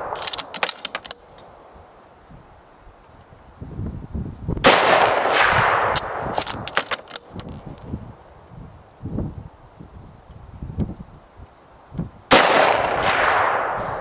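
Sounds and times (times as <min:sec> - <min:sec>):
rifle shot: 0:00.0 - 0:01.2, 0:04.6 - 0:07.2, 0:12.3 - 0:14.0
sharp metallic clicks: 0:00.0 - 0:01.5, 0:05.7 - 0:08.0
dull knocks handling gun: 0:00.2 - 0:01.2, 0:05.8 - 0:07.9.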